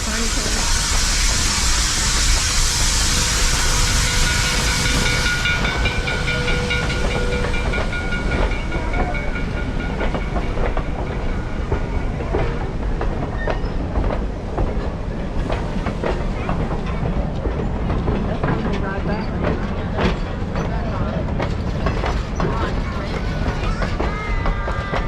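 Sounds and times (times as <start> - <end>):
loud steam hiss: 0.0 - 17.4
train wheels clicking over rail joints: 0.0 - 25.0.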